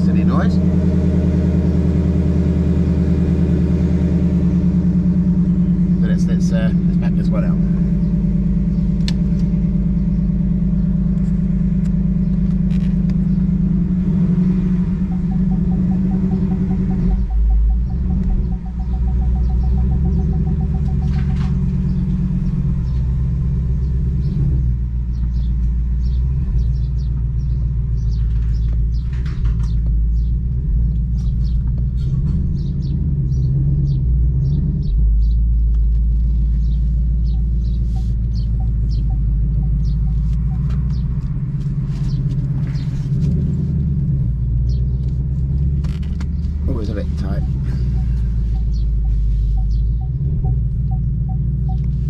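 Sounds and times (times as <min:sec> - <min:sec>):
car engine exhaust rumble: 0:00.0 - 0:52.0.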